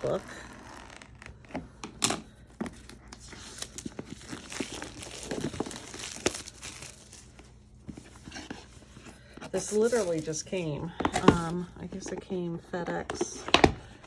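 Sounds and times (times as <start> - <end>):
packaging wrap crinkling and tearing: 2.8 - 7.5.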